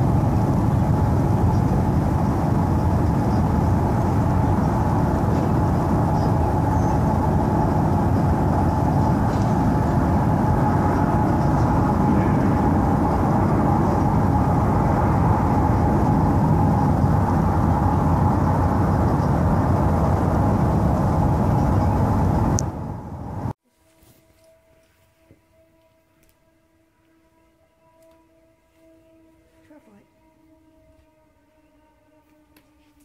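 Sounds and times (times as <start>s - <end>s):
low rumbling drone: 0.0s - 23.6s.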